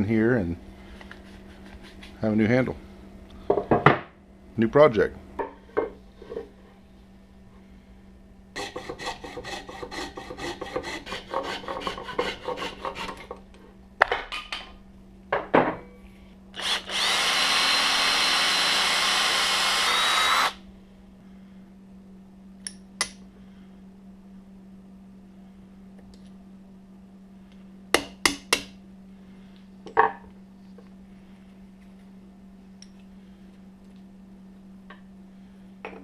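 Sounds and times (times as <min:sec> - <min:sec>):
rhythmic scraping on wood: 0:08.6 - 0:13.3
power tool running: 0:16.6 - 0:20.6.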